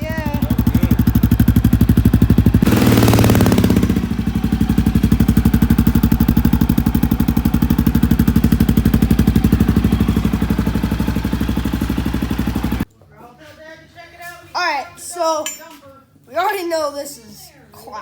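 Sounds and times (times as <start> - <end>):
dirt bike engine idling: 0.0 - 12.9.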